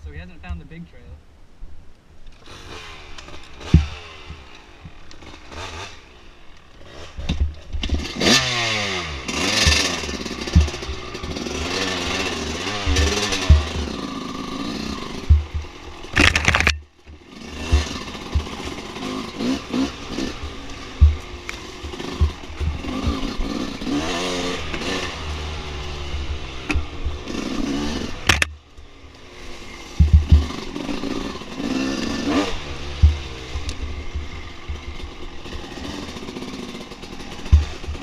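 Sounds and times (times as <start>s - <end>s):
dirt bike engine revving: 2.3s - 38.0s
knocks and clatter from rough ground: 3.2s - 5.9s, 6.6s - 8.3s, 9.5s - 14.0s, 14.9s - 25.1s, 26.6s - 28.6s, 29.9s - 31.7s, 32.9s - 38.0s.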